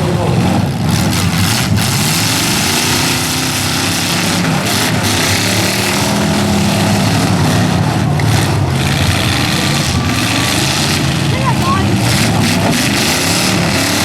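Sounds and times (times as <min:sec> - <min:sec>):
truck engines revving: 0:00.0 - 0:14.0.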